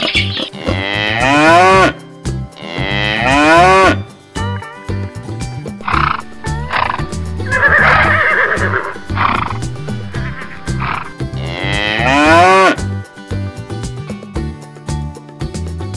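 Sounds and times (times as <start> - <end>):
cattle mooing: 5.8 - 12.8
music with repeating bass line: 5.8 - 12.8.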